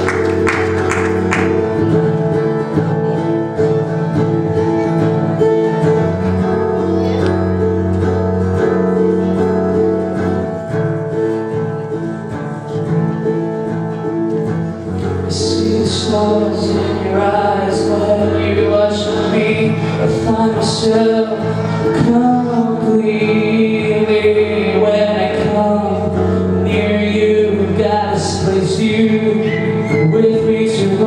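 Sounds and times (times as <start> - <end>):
guitar instrumental: 0.0 - 31.0.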